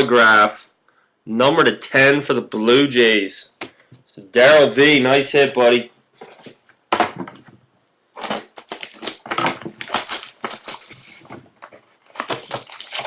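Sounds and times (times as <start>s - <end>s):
wrapper crinkling and tearing: 8.2s - 13.0s.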